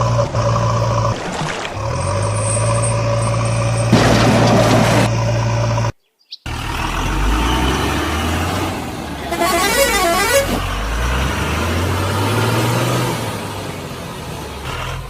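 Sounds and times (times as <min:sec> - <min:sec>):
vehicle engine humming: 0:00.0 - 0:15.0
warbling horn: 0:09.2 - 0:10.7.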